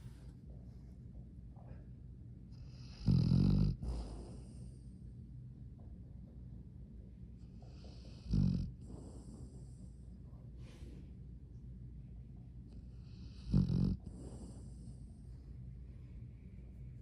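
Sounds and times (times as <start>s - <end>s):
dog snoring: 2.5s - 4.9s, 7.4s - 10.8s, 12.7s - 15.1s.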